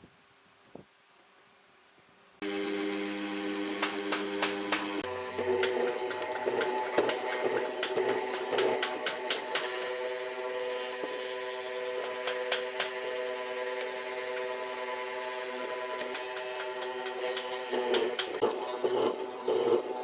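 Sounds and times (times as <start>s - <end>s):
power tool humming: 2.4s - 20.0s
sharp clicks and knocks: 3.8s - 9.8s, 12.0s - 13.0s, 16.0s - 18.9s.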